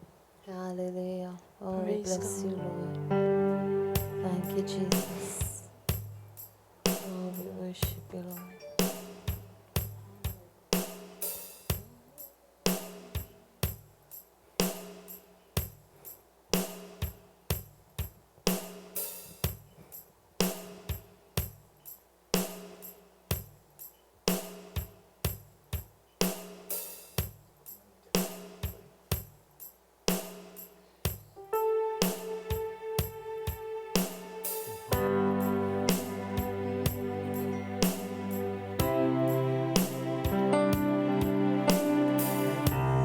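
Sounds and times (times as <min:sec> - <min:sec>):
drum kit beat: 0:01.9 - 0:43.0
low bass line: 0:02.0 - 0:05.7, 0:40.4 - 0:43.0.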